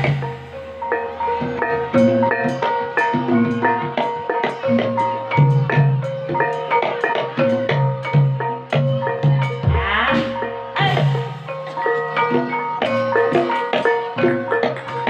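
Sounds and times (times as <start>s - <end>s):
gamelan music: 0.0s - 15.0s
metallophones ringing: 0.0s - 15.0s
low drum beats: 7.3s - 11.4s.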